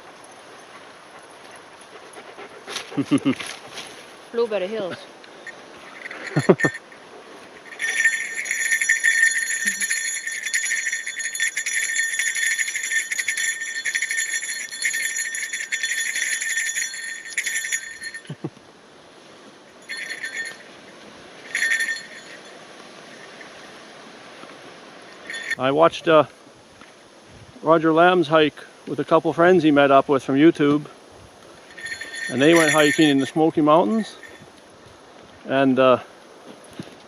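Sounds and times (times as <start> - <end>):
bell jingling: 4.4 - 18.6, 19.7 - 23.8, 25.0 - 26.1, 31.5 - 34.6.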